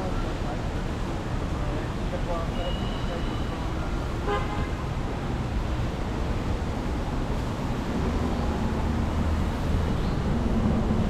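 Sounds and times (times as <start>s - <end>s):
city street traffic rumble: 0.0s - 11.0s
vehicle engine hum: 5.6s - 11.0s.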